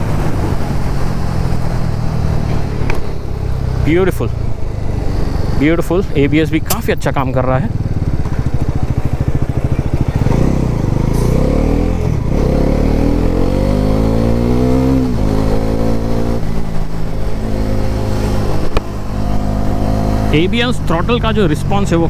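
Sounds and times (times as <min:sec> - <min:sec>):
motorcycle engine accelerating: 0:00.0 - 0:22.0
sharp click: 0:06.7 - 0:07.0.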